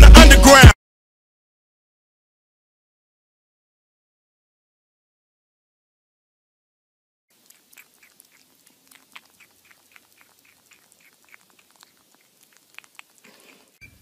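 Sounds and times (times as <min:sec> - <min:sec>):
kitten teeth clicking on plastic: 0:07.4 - 0:13.8.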